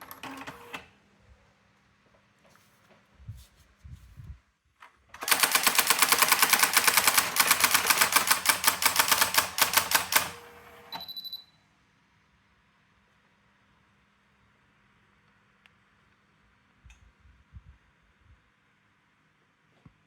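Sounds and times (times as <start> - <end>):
electronic typewriter printing: 0.0 - 0.8, 5.2 - 11.0.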